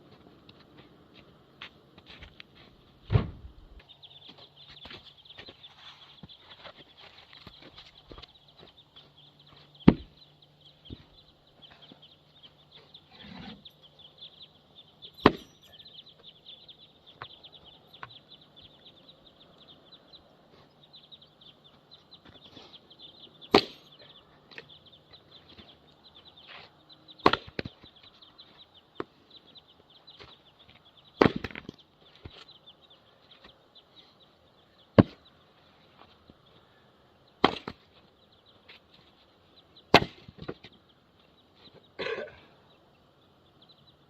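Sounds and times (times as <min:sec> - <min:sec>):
axe chopping firewood: 0:15.2 - 0:15.6, 0:23.5 - 0:23.8, 0:27.2 - 0:27.7, 0:31.2 - 0:31.8, 0:35.0 - 0:35.2, 0:37.4 - 0:37.8, 0:39.9 - 0:40.6.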